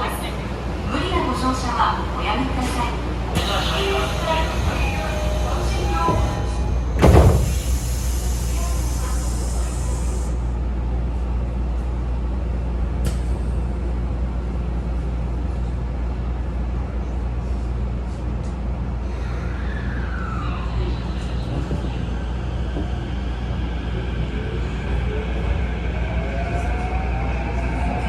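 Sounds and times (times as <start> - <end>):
traction motors whining: 0.0 - 10.3, 19.2 - 28.0
train low hum: 0.0 - 28.0.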